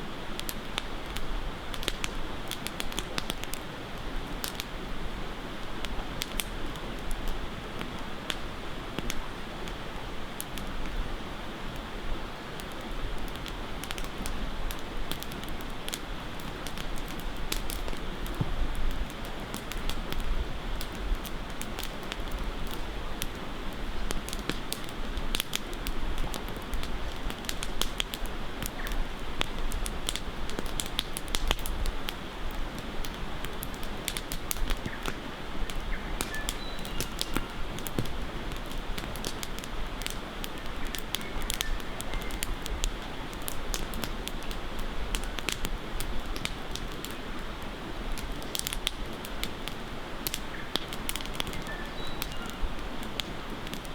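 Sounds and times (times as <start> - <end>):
campfire crackling and popping: 0.1 - 53.9
bird chirps: 35.9 - 37.4, 51.4 - 52.6.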